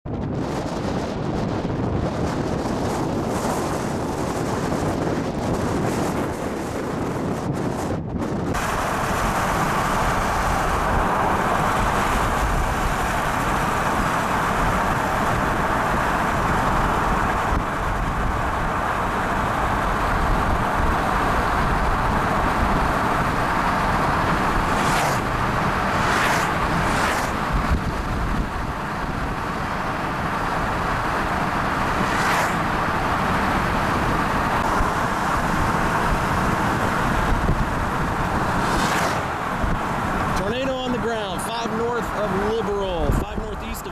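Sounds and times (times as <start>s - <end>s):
car road and engine noise: 0.0s - 43.9s
brief whooshes: 38.6s - 39.3s.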